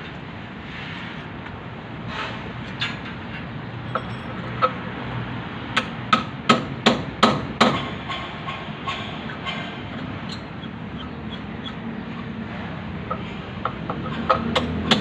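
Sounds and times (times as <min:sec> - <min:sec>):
hammer striking metal on concrete: 0:05.8 - 0:09.7, 0:13.1 - 0:15.0.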